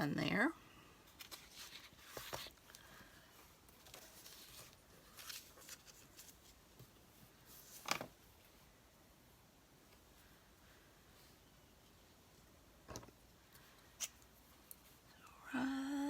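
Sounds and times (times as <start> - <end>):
paper and tools rustling: 1.1 - 8.3.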